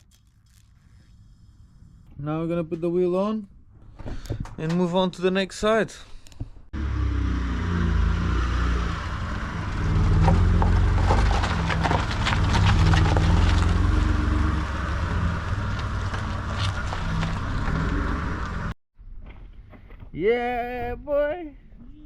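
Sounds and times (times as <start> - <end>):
car engine running at low revs: 6.8 - 18.8.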